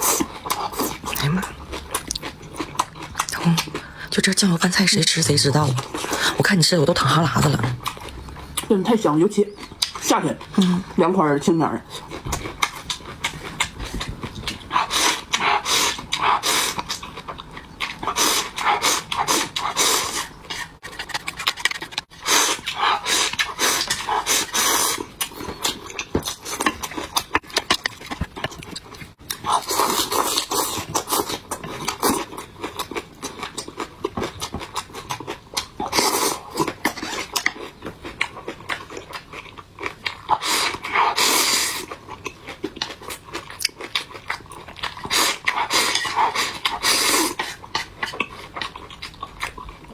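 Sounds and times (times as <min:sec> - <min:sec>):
crunchy chewing: 0:00.0 - 0:04.3, 0:07.6 - 0:08.8, 0:11.8 - 0:49.9
slurping: 0:12.0 - 0:17.2, 0:17.8 - 0:32.2, 0:44.9 - 0:48.6.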